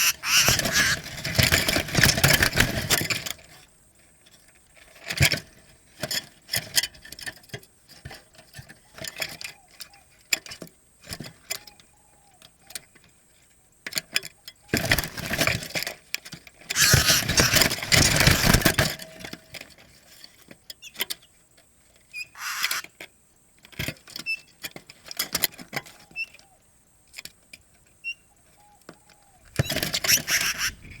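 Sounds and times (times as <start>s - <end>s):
dove cooing: 0.0s - 1.8s, 16.8s - 18.5s, 22.4s - 22.9s, 28.3s - 31.0s
rustling and clattering: 0.2s - 9.2s, 14.8s - 20.6s.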